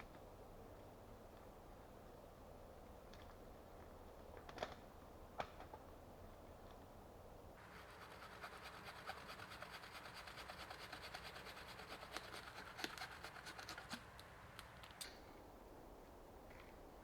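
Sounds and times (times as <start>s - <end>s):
hand saw cutting wood: 7.6s - 14.1s.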